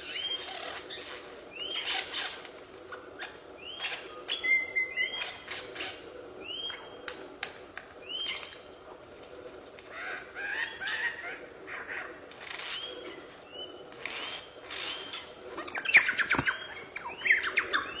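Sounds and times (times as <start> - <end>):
bird chirping: 3.2 - 7.0, 10.0 - 18.0.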